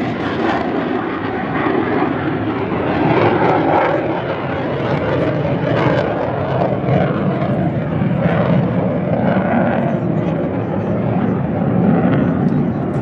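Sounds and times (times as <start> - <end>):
jet engine roaring: 0.0 - 13.0.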